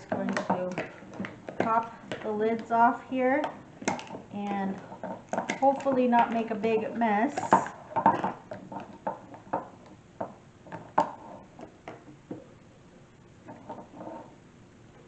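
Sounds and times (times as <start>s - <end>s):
plastic lids clicking and knocking: 0.0s - 2.8s, 3.4s - 6.6s, 7.4s - 12.5s.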